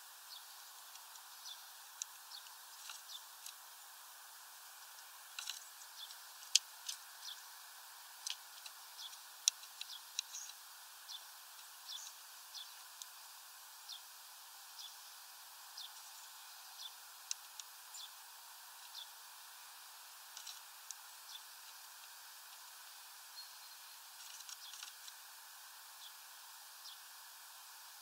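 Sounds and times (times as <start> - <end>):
faint hiss: 0.0 - 28.0
small birds chirping: 0.0 - 28.0.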